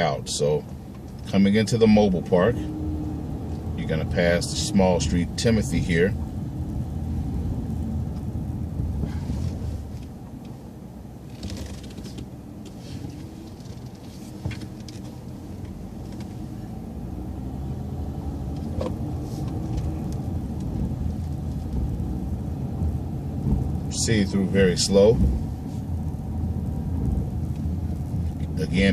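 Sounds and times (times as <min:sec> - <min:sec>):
bus engine and road rumble: 0:00.0 - 0:28.9
rattles and clicks: 0:11.2 - 0:16.4.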